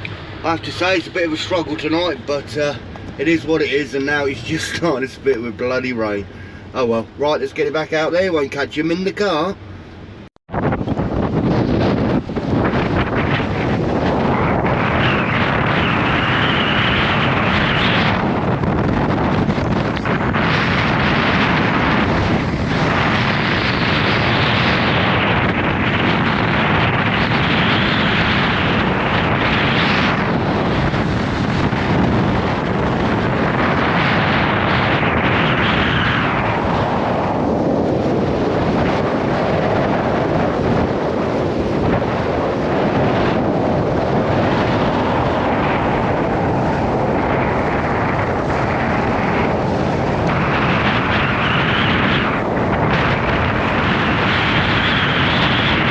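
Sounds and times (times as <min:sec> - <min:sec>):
gale-force wind buffeting microphone: 0:00.0 - 0:55.9.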